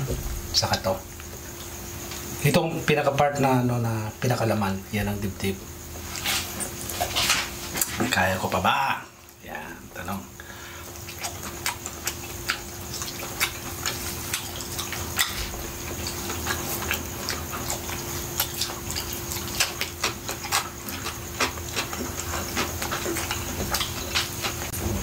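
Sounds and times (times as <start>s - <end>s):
faint steady hum: 0.0s - 25.0s
wet chewing and lip smacking: 10.8s - 25.0s.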